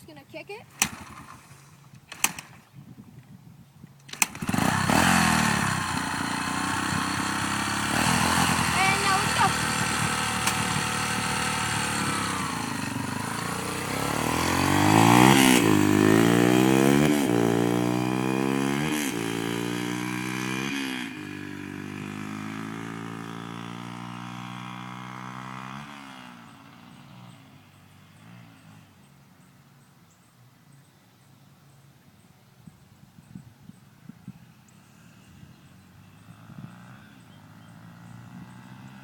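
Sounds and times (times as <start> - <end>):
dirt bike engine revving: 0.7 - 2.5, 4.1 - 28.9, 35.8 - 39.0.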